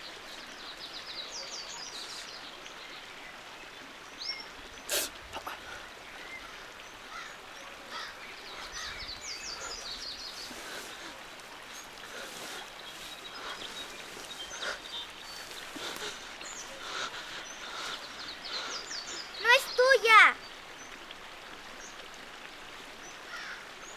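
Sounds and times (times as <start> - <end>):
small birds chirping: 0.0 - 3.1, 4.2 - 21.0.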